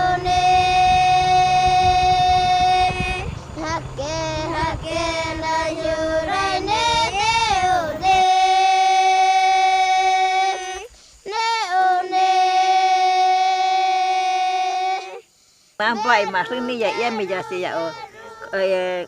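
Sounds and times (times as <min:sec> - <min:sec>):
high voice singing: 0:00.0 - 0:15.2.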